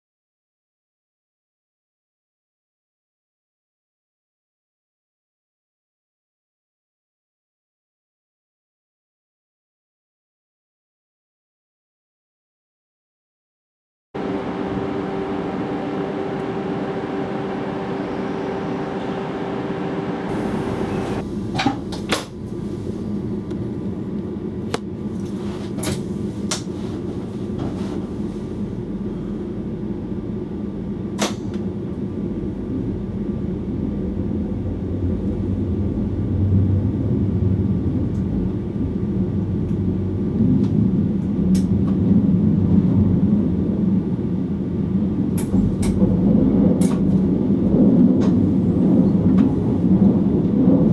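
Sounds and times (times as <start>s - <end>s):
steady electrical hum: 14.2s - 46.4s
train low rumble: 14.2s - 50.9s.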